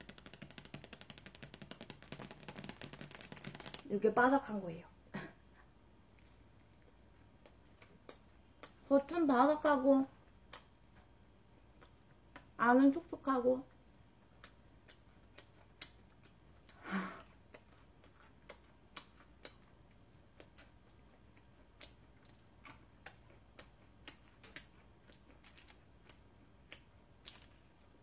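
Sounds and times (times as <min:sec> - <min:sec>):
crunchy bread crust being chewed: 0:14.2 - 0:28.0.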